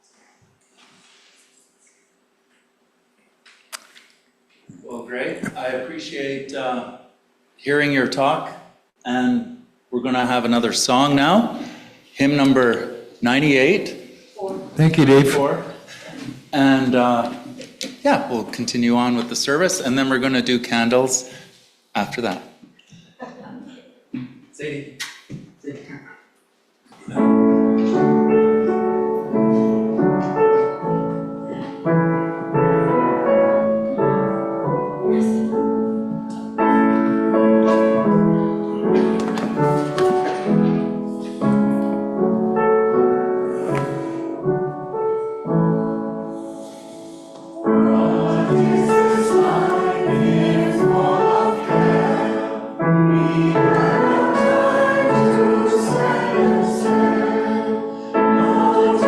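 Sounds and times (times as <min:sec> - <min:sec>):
piano playing a hymn: 0:14.8 - 0:16.0, 0:27.0 - 0:59.0.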